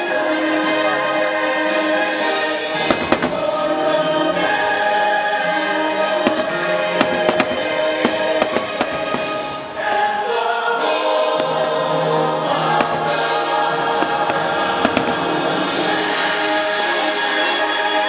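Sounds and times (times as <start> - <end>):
choral music: 0.0 - 18.0
fireworks bursting: 2.6 - 16.7.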